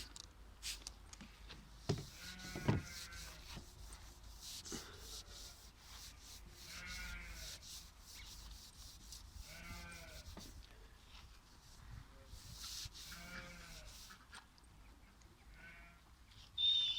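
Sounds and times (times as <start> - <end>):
steady low rumble and hiss: 0.0 - 16.5
faint animal bleating: 15.5 - 16.1.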